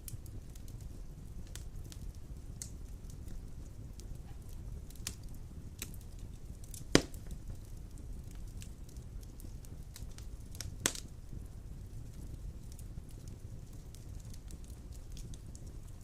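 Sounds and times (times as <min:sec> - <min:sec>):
fire rumbling in fireplace: 0:00.0 - 0:16.0
wood crackles: 0:00.0 - 0:16.0
loud log pop: 0:07.0 - 0:07.2.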